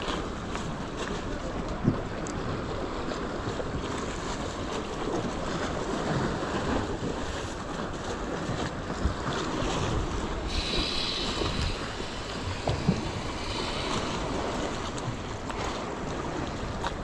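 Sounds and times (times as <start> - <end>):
ocean surf washing: 0.0 - 17.0
wind buffeting microphone: 0.0 - 17.0
faint high hiss: 10.5 - 14.7.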